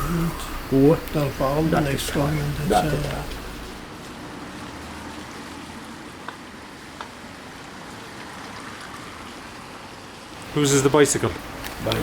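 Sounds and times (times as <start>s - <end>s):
room noise hiss: 0.0s - 3.9s.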